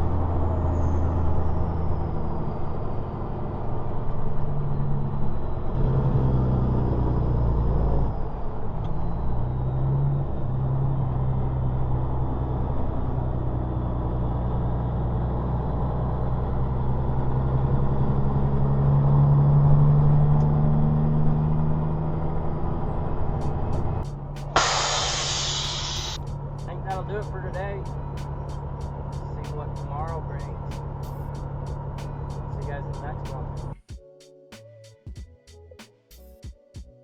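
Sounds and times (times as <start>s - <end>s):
diesel truck engine droning: 0.0s - 33.8s.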